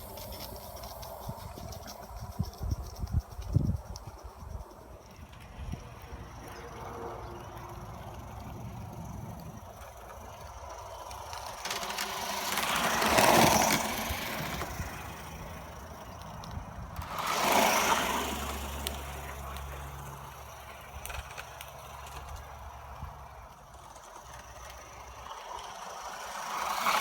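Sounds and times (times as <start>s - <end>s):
steam locomotive rushing surges: 0.0s - 3.8s, 4.4s - 21.1s, 22.8s - 27.0s.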